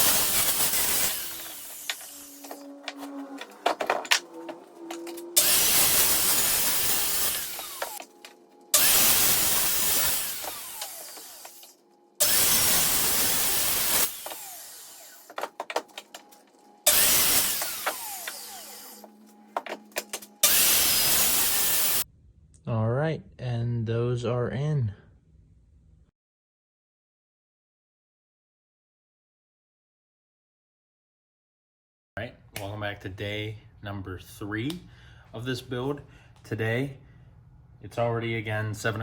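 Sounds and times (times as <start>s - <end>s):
power tool cutting lumber: 0.0s - 22.0s.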